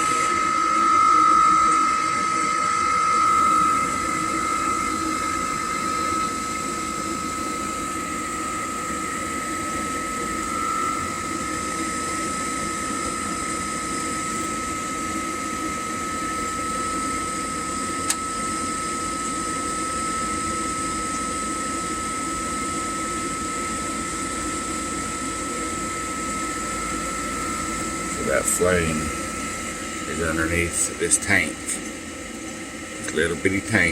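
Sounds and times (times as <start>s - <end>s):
water heater whine and hiss: 0.0s - 33.9s.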